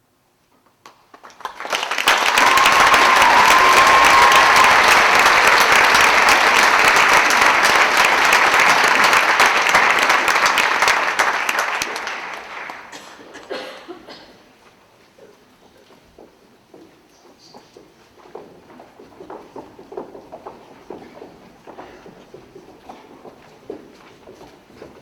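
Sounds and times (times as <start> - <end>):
audience applauding: 0.9 - 13.5.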